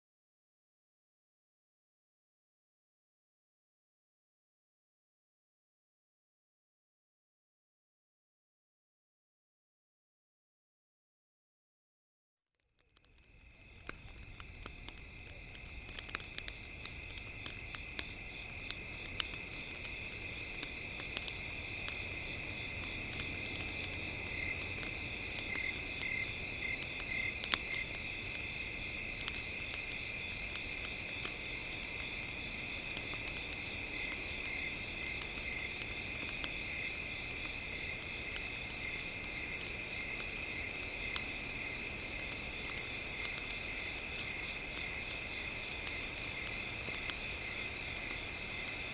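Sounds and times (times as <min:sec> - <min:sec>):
campfire crackling and popping: 0:12.8 - 0:48.9.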